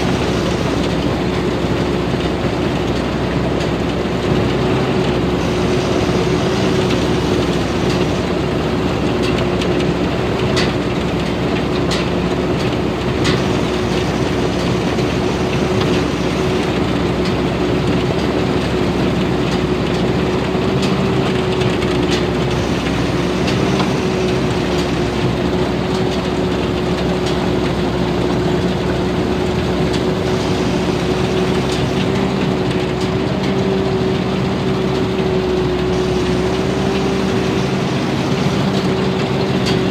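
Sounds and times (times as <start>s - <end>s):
constant whine: 0.0s - 39.9s
diesel engine running: 0.0s - 39.9s.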